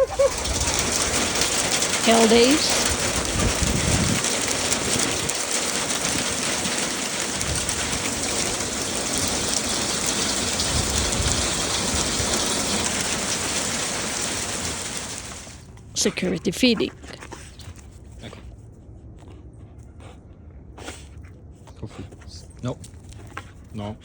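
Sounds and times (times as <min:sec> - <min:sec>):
low rumbling: 0:00.0 - 0:16.4
heavy rain hissing: 0:00.0 - 0:16.8.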